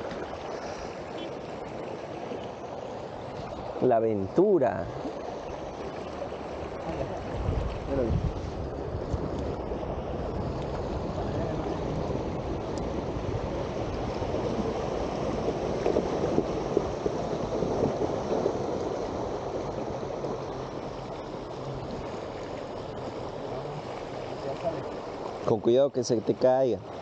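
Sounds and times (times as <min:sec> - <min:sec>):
river water flowing over stones: 0:00.0 - 0:27.0.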